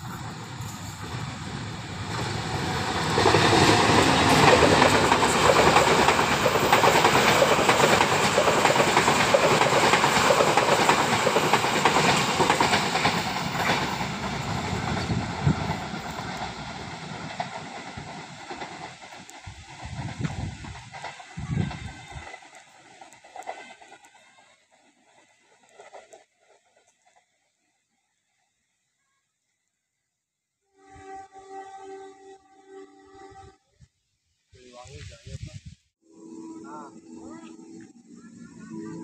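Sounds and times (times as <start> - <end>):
train passing on track: 0.0 - 27.2, 36.0 - 39.0.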